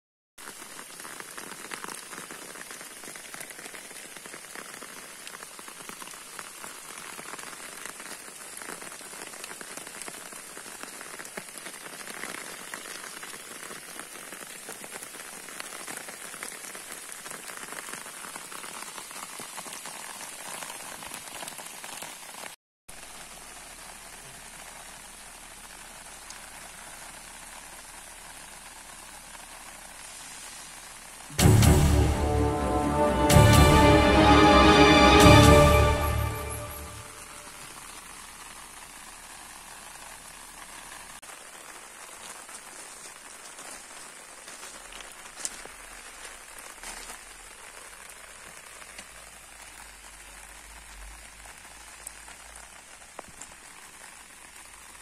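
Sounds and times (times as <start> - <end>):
steady rain falling: 0.4 - 55.0.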